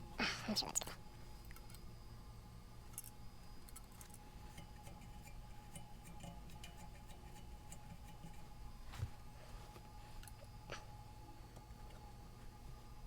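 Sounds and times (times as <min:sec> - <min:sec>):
steady low hum: 0:00.0 - 0:13.0
small parts and tools clicking: 0:00.8 - 0:01.9, 0:02.9 - 0:08.4.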